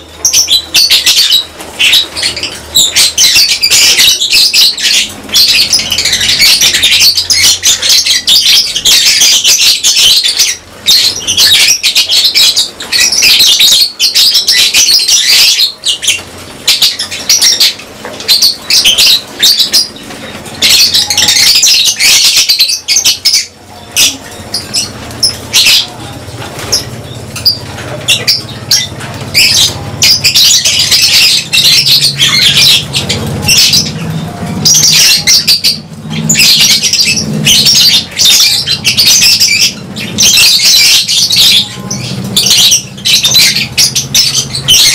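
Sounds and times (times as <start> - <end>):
lovebirds chattering: 0.0 - 44.9.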